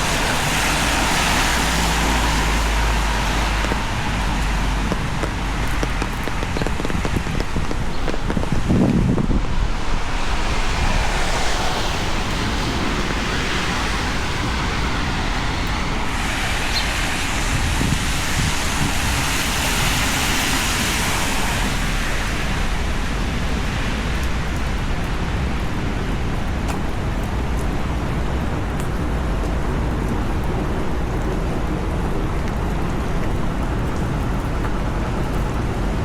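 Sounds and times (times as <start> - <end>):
heavy rain hissing: 0.0 - 30.0
tyres on wet asphalt: 0.0 - 36.0
low rumble: 1.5 - 19.2.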